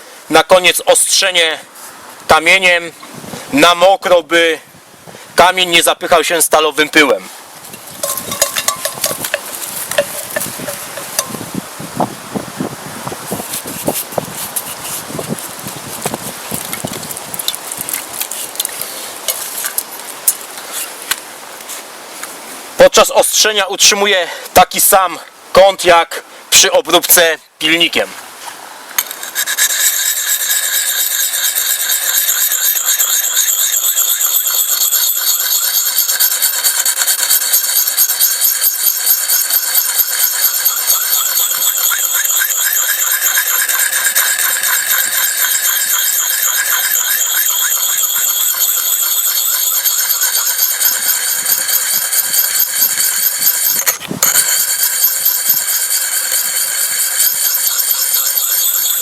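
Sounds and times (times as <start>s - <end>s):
whetstone scraping axe edge: 8.0s - 11.4s, 29.0s - 59.0s.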